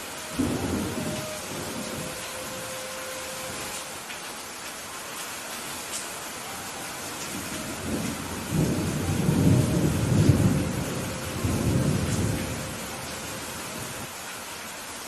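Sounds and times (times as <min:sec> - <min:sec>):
thunder rumbling: 0:00.0 - 0:03.8, 0:07.1 - 0:14.1
steady rain: 0:00.0 - 0:15.0.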